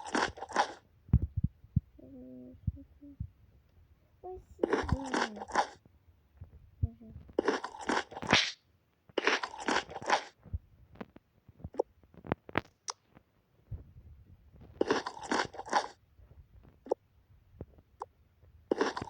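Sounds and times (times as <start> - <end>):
quick crunches: 7.4 - 10.4, 18.7 - 19.0.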